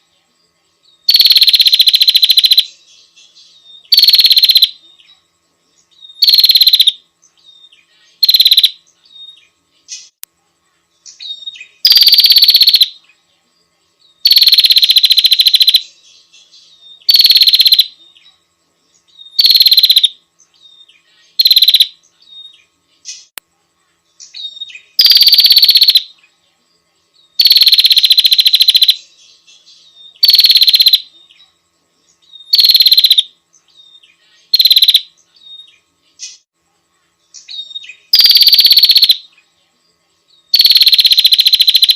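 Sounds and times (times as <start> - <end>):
bird rattling calls: 19.4 - 20.1.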